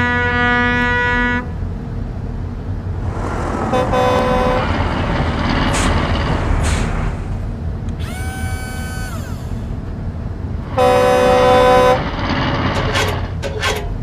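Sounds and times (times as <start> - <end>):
low engine rumble: 0.0 - 14.0
truck air horn blast: 3.7 - 4.7, 10.8 - 12.0.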